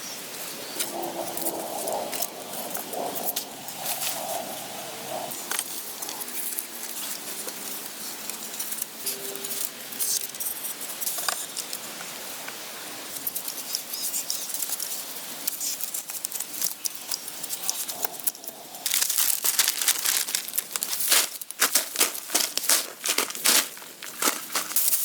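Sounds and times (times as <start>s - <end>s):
rustling and crackling with snaps: 13.2s - 25.0s.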